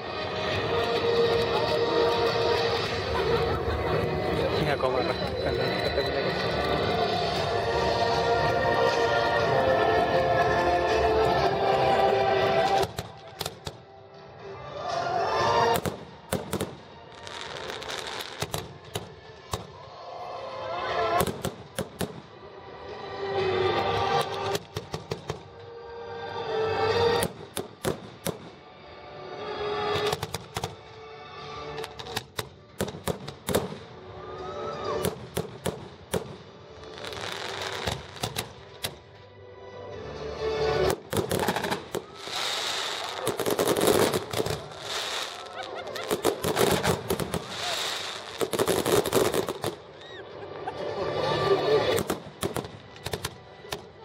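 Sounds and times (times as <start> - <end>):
music: 0.0 - 54.0
fireworks crackling: 0.1 - 14.2, 15.4 - 19.9, 31.8 - 34.0, 35.0 - 39.2, 40.8 - 50.1, 51.6 - 54.0
fireworks bangs: 40.9 - 49.9.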